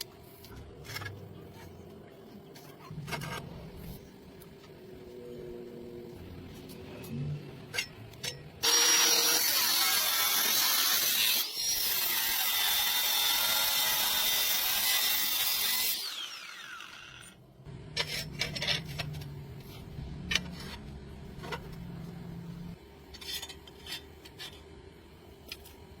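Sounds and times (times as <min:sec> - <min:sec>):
angle grinder on steel: 0:08.6 - 0:17.4
low hum: 0:17.5 - 0:23.0.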